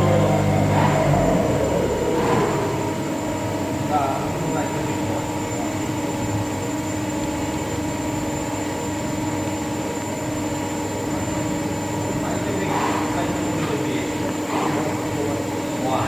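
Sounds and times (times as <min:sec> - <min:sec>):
milling machine humming: 0:00.0 - 0:07.3.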